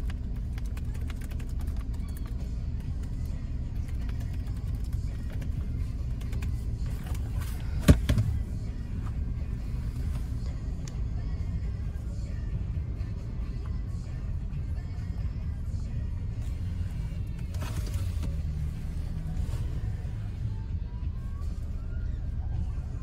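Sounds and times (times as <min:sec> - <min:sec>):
laptop typing clicks: 0:00.0 - 0:02.4
car engine idling: 0:00.0 - 0:23.0.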